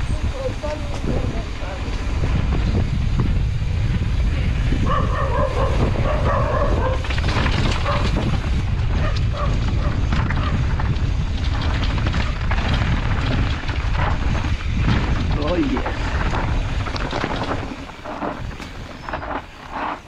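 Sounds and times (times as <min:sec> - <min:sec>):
bike clattering over rough trail: 0:00.0 - 0:20.0
wind buffeting microphone: 0:00.0 - 0:20.0.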